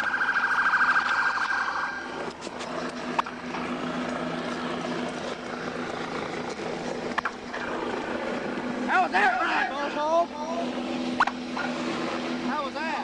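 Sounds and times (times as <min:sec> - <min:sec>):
police siren pulsing: 0:00.0 - 0:06.4.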